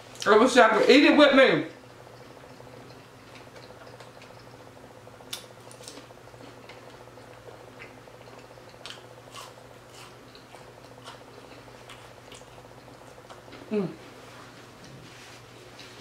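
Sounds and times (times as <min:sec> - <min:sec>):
faint steady hum: 0:00.0 - 0:16.0
wet chewing smacks: 0:02.1 - 0:04.6.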